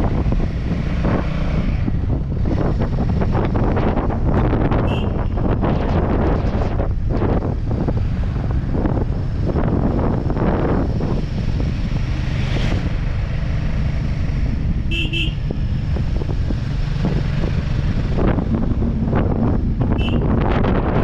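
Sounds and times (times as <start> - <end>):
rush of wind: 0.0 - 21.0
motorcycle engine running: 1.9 - 21.0
horn tooting: 4.8 - 5.6, 14.9 - 15.6, 19.9 - 20.4.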